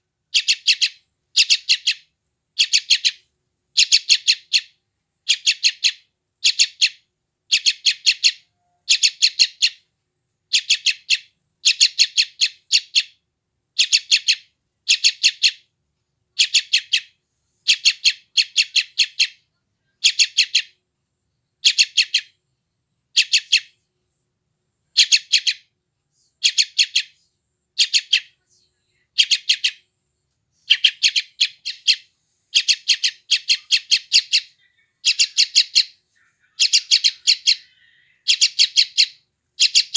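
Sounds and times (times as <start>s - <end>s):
bird chick begging chirps: 0.3s - 3.2s, 3.8s - 9.8s, 10.5s - 13.2s, 13.8s - 15.7s, 16.4s - 20.8s, 21.6s - 22.4s, 23.1s - 23.8s, 24.9s - 25.7s, 26.3s - 27.2s, 27.8s - 28.4s, 29.0s - 29.8s, 30.6s - 39.9s.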